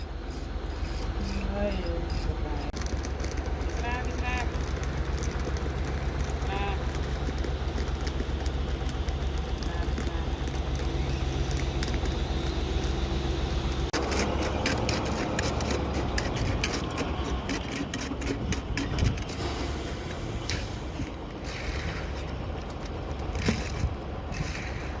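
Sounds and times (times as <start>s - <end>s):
engine running: 0.0s - 25.0s
scraping and clattering: 13.9s - 25.0s.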